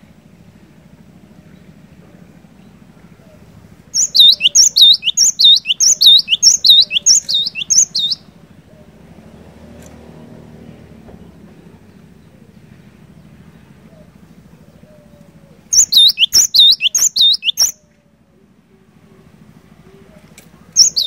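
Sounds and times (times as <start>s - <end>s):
bird singing repeated high notes: 4.0s - 8.2s, 15.7s - 17.8s, 20.8s - 21.0s.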